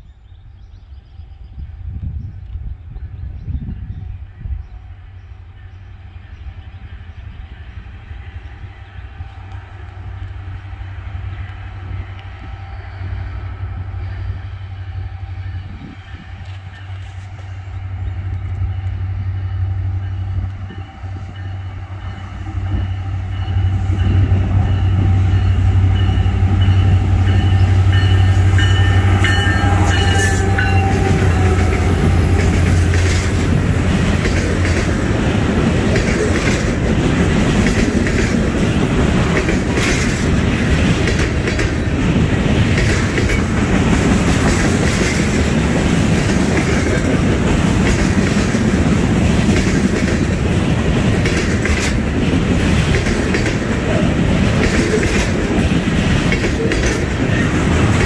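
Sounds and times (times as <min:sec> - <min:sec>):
diesel locomotive engine drone: 0:00.0 - 0:58.0
freight cars rumbling on rails: 0:00.6 - 0:58.0
train horn: 0:05.5 - 0:34.1.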